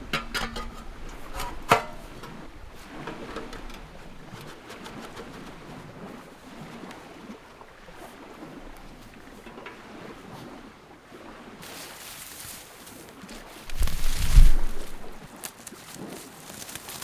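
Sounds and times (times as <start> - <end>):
wind noise: 13.6 - 15.3.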